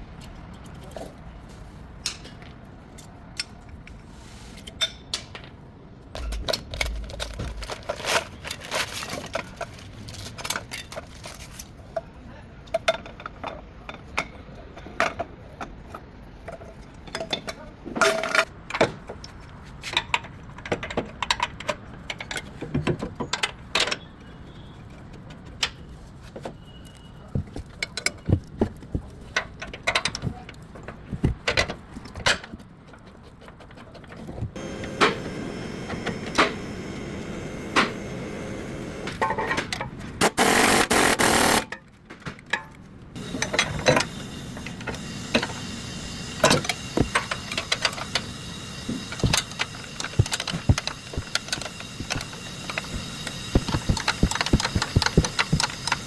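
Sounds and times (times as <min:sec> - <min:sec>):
steady background hum: 0:28.1 - 0:56.0.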